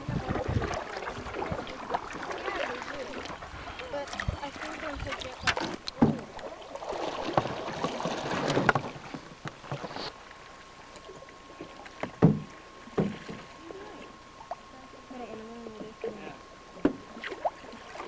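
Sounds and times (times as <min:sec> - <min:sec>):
water swishing past paddle: 0:00.0 - 0:14.7, 0:16.9 - 0:18.0
faint steady tone: 0:08.8 - 0:18.0
sharp knocks: 0:12.0 - 0:13.4.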